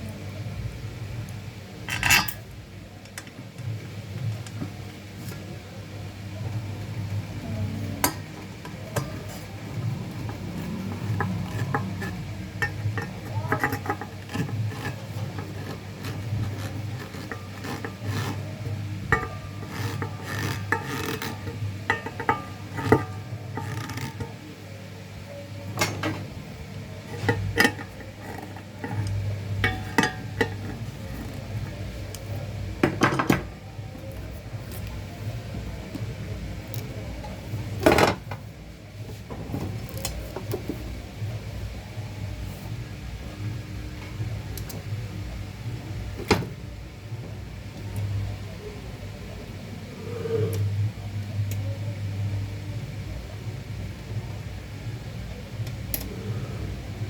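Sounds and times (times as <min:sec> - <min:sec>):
steady low hum: 0:00.0 - 0:57.0
tools clicking and scraping: 0:08.0 - 0:24.5, 0:27.0 - 0:33.5.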